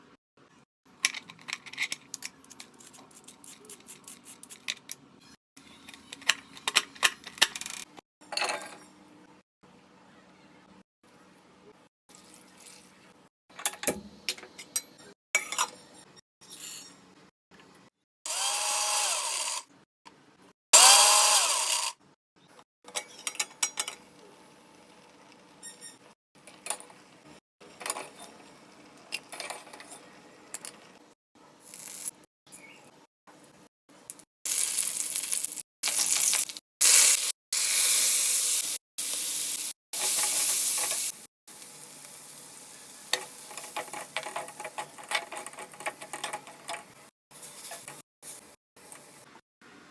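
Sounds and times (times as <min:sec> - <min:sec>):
kitchen utensils clicking and knocking: 0:01.0 - 0:05.0, 0:05.7 - 0:08.8, 0:22.9 - 0:24.0, 0:27.8 - 0:28.4, 0:43.1 - 0:48.0
hot oil sizzling in a pan: 0:34.5 - 0:45.6.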